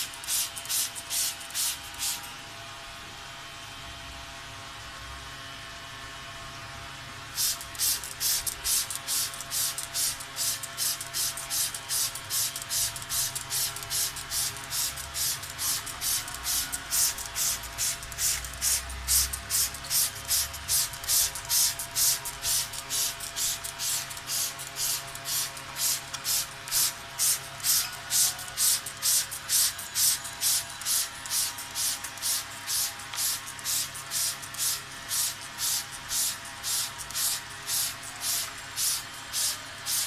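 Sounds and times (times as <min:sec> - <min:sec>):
spray bottle squirting mist: 0:00.0 - 0:02.3, 0:07.4 - 0:40.0.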